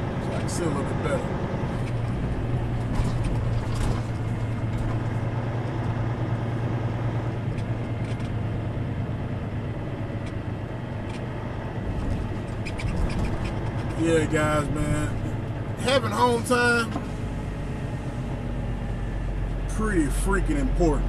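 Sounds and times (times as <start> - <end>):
road noise: 0.0 - 21.0
truck engine drone: 0.0 - 21.0.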